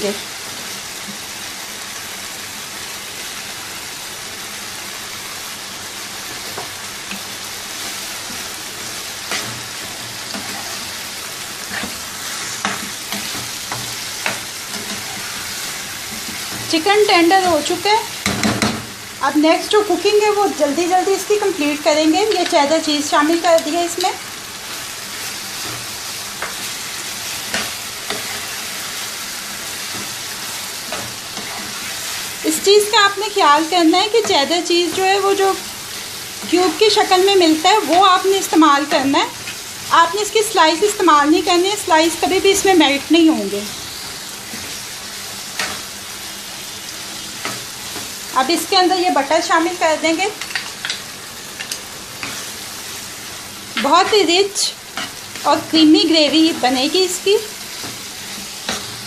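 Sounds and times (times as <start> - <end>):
chicken sizzling in oil: 0.0 - 59.0
spatula scraping a pan: 6.3 - 16.8, 24.6 - 32.5, 57.7 - 59.0
spatula tapping and scraping pan: 11.7 - 15.3, 17.4 - 18.9, 26.4 - 26.7, 27.4 - 28.5.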